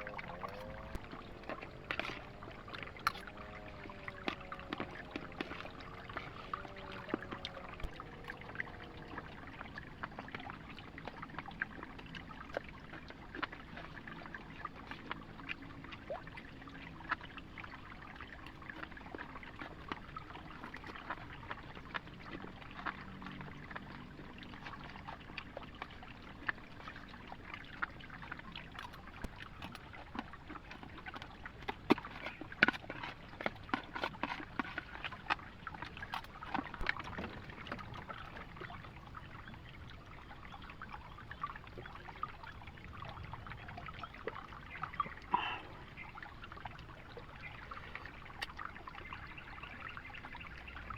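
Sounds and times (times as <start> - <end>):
rain water dripping and trickling: 0.0 - 50.9.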